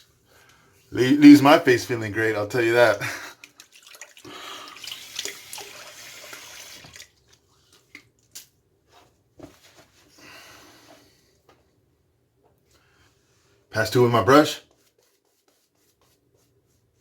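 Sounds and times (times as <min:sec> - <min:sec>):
tap water running into sink: 0:03.4 - 0:07.2.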